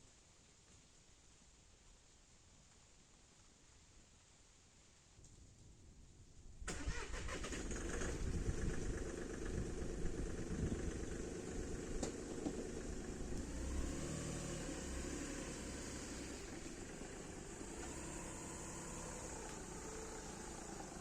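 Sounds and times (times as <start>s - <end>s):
motorcycle engine running: 8.1s - 14.0s.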